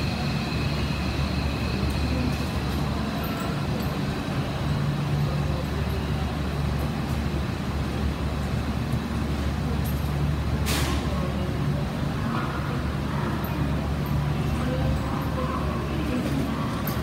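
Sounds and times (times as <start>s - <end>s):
electric train humming: 0.0s - 10.6s.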